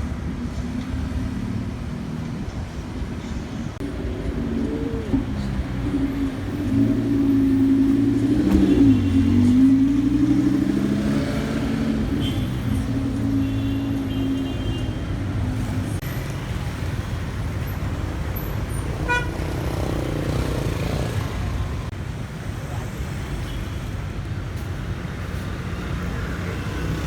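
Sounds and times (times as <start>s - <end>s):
street traffic: 0.0s - 27.0s
car engine running: 3.8s - 10.9s
vehicle horn toots: 8.0s - 9.8s, 12.1s - 15.1s, 19.0s - 19.4s.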